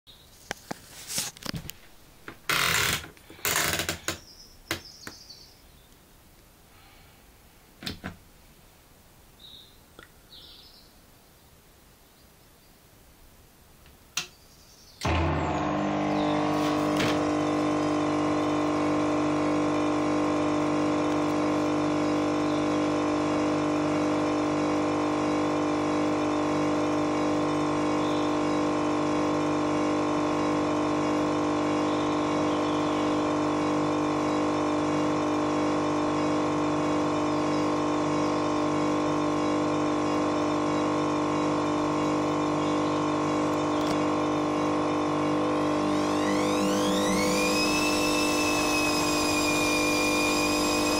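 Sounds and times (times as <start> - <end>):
washing machine spinning: 15.1 - 50.9.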